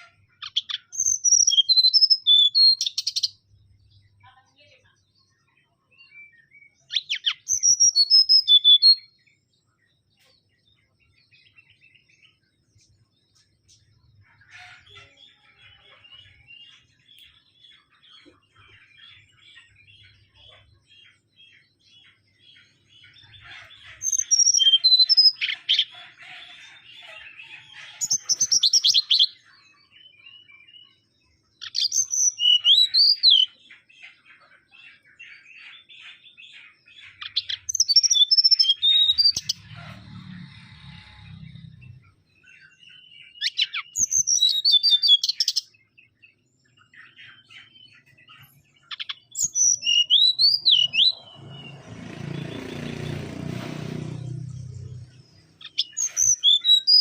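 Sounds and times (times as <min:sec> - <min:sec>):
bird whistling phrases: 0:00.0 - 0:03.3, 0:31.6 - 0:33.5, 0:43.4 - 0:45.6, 0:48.9 - 0:51.1
bird twittering chatter: 0:00.0 - 0:04.8, 0:06.3 - 0:09.1, 0:11.5 - 0:31.0, 0:31.6 - 0:57.0.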